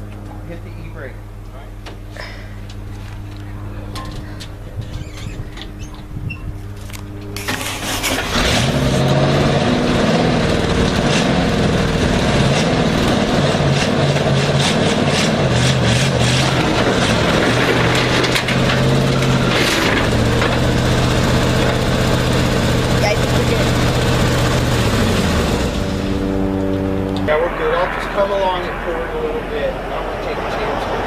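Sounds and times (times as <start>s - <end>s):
truck engine under load: 7.3s - 26.8s.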